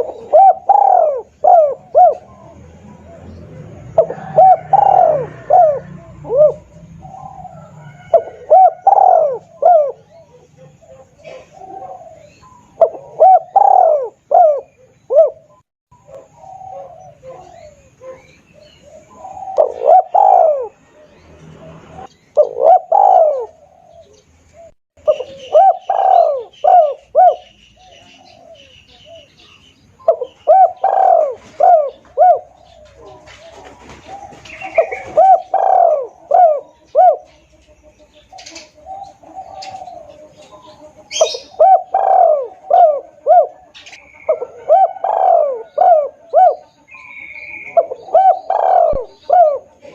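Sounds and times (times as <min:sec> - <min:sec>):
dove cooing: 0:00.0 - 0:49.9
high bird chirping: 0:00.0 - 0:49.9.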